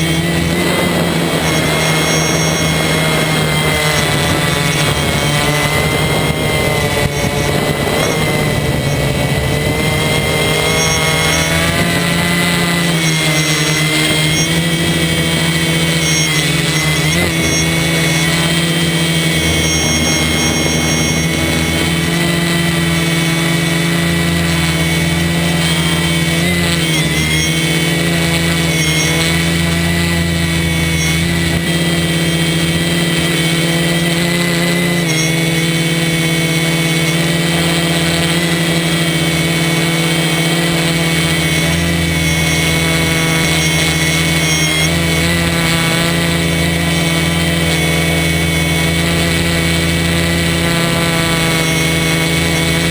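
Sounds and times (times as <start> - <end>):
quadcopter motors buzzing: 0.0 - 52.9.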